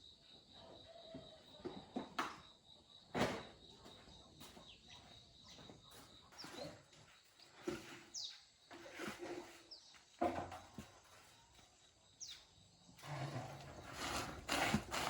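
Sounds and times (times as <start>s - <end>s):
faint bird chirps: 3.7s - 8.5s.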